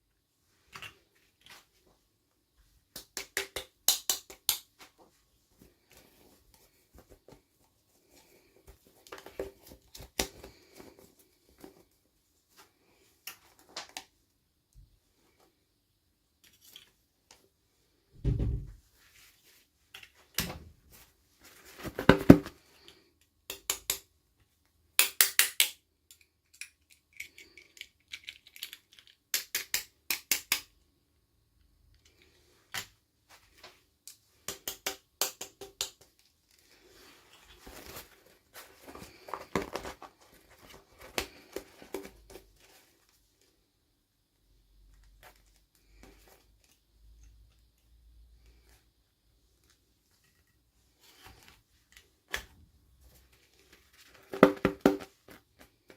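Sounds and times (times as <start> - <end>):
packaging rustling: 36.8 - 43.0.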